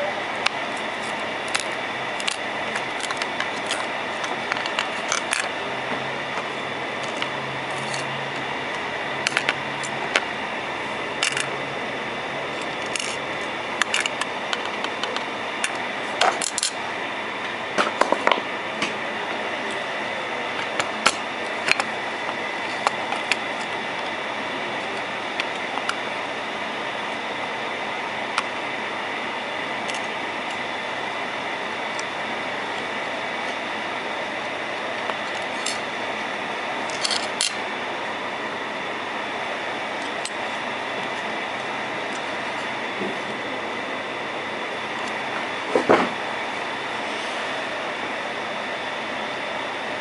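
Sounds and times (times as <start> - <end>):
fan-like hiss with high whine: 0.0 - 50.0
small tools clicking and tapping: 36.9 - 37.6.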